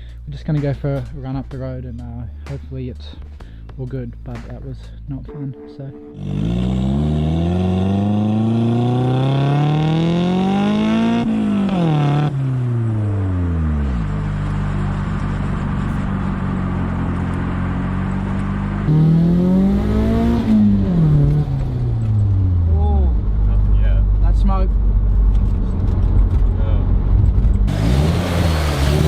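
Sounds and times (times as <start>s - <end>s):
car engine accelerating: 6.2s - 29.0s.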